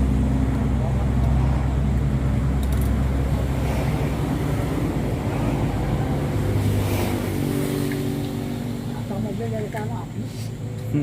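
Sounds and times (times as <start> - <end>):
rushing noise: 0.0 - 8.8
engine humming: 0.0 - 11.0.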